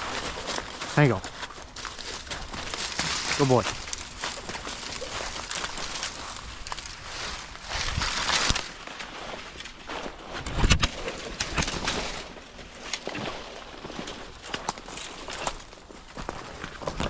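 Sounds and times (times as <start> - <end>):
footsteps through dry vegetation: 0.0 - 17.0.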